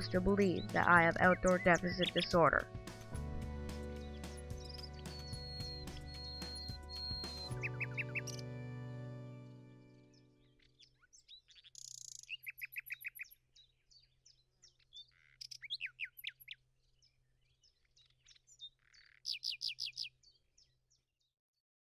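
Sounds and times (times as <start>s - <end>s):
songbirds chirping and singing: 0.0s - 8.5s, 9.8s - 21.0s
background music: 0.0s - 10.5s.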